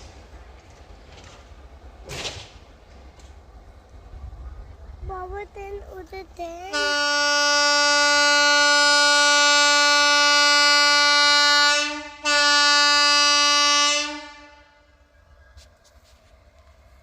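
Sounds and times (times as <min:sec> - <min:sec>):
locomotive air horn blasts: 0:06.7 - 0:14.9.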